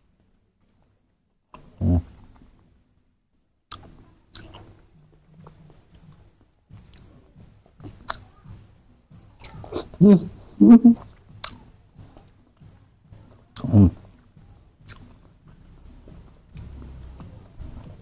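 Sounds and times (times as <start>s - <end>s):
wet chewing and smacking: 3.7s - 18.0s.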